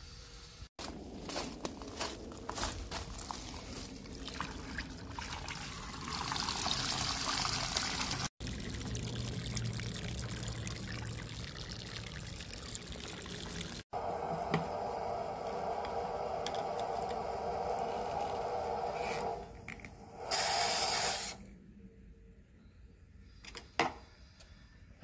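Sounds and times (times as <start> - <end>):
water splashing onto gravel: 0.8 - 5.8.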